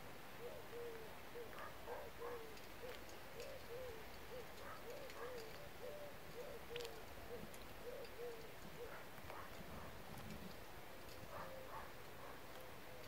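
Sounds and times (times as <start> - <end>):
bird low hooting calls: 0.4 - 10.0.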